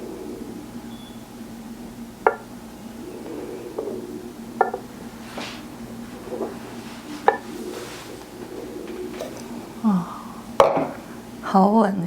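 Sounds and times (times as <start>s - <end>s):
steady low hum: 0.0s - 12.0s
soft knocks of cups: 2.2s - 2.5s, 4.6s - 4.9s, 6.2s - 9.5s, 10.6s - 11.0s.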